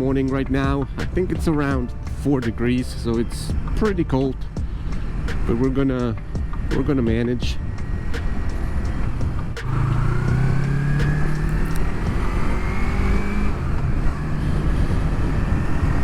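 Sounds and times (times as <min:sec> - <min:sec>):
low rumble of riding noise: 0:00.0 - 0:16.0
motorcycle engine accelerating: 0:03.5 - 0:16.0.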